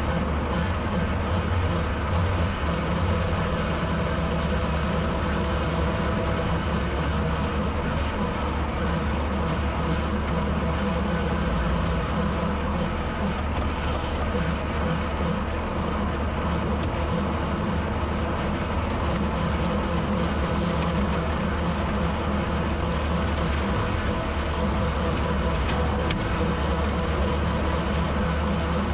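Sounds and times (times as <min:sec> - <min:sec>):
tractor engine running: 0:00.0 - 0:28.9
rotary cutter mowing: 0:19.0 - 0:28.9.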